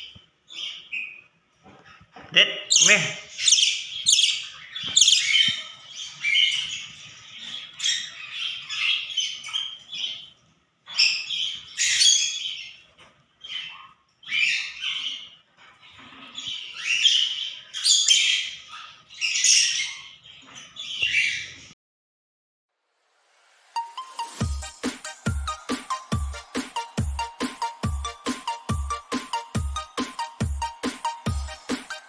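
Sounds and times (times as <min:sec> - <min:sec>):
budgerigar chattering and chirping: 0:02.7 - 0:10.3, 0:10.9 - 0:12.8, 0:13.4 - 0:15.3, 0:16.0 - 0:20.2.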